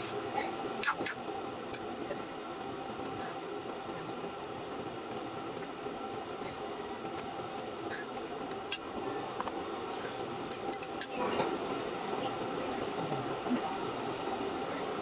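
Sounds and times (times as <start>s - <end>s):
gas burner flame: 0.0s - 15.0s.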